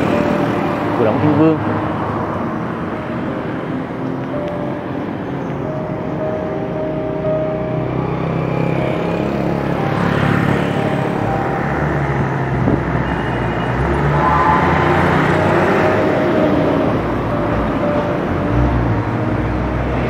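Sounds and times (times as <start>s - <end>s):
cars and motorbikes passing: 0.0s - 20.0s
wind rumble on microphone: 12.4s - 13.0s.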